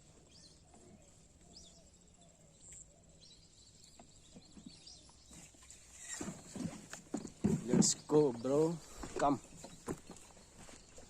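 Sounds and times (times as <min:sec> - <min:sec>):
small bird chirps: 0:00.2 - 0:06.7.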